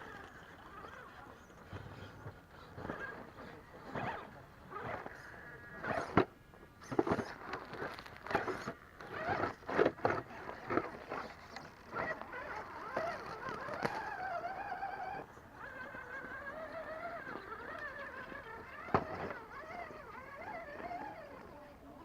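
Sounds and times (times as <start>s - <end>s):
electric motor and gears whining: 0.0s - 22.0s
knocks and scrapes: 5.8s - 14.2s.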